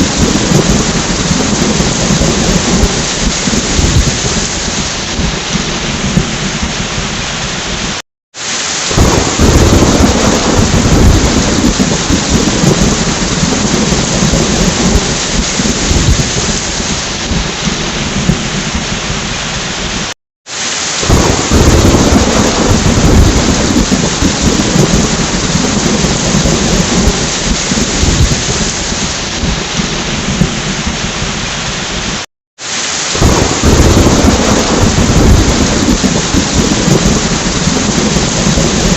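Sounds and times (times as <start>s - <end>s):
thunder rumbling: 0.0s - 8.0s, 8.9s - 20.1s, 21.0s - 32.2s, 33.1s - 38.9s
heavy rain: 0.0s - 38.9s.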